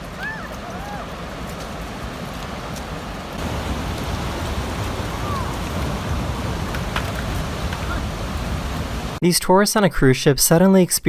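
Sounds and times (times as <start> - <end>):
rushing water: 0.0 - 9.2
wind rushing: 1.0 - 9.2.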